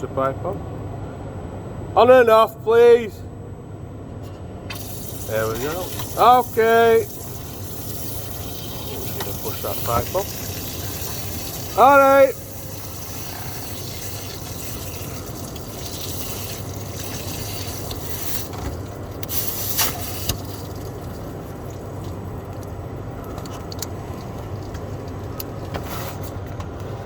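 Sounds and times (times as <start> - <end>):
electric fuel pump humming: 4.2 - 27.0.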